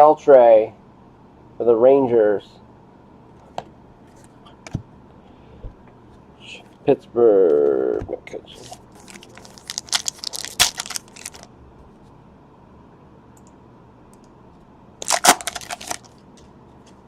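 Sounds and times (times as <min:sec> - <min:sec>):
cards crinkling and clicking: 0:08.6 - 0:11.5, 0:15.0 - 0:17.0.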